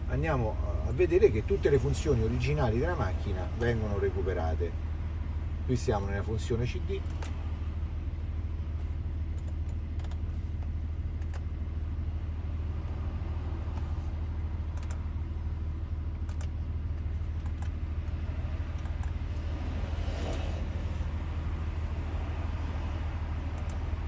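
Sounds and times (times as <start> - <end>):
car engine idling: 0.0 - 24.0
faint clicks: 23.5 - 23.8.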